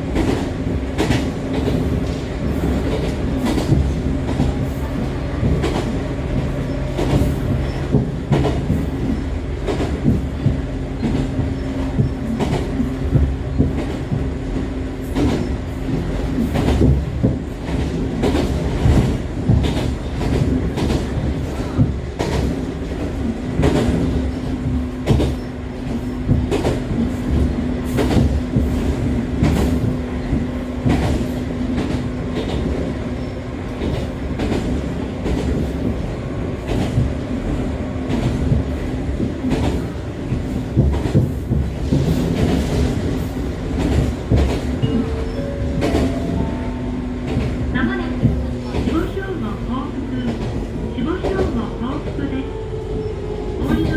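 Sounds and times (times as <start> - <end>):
wheels clacking over rail joints: 0.0 - 52.2
low train rumble: 0.0 - 53.9.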